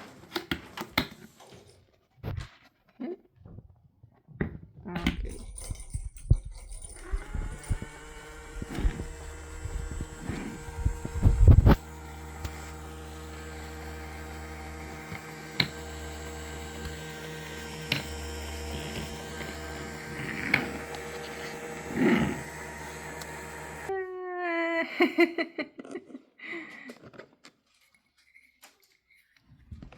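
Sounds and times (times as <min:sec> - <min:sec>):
robot cleaner motor hum: 0:06.4 - 0:23.9.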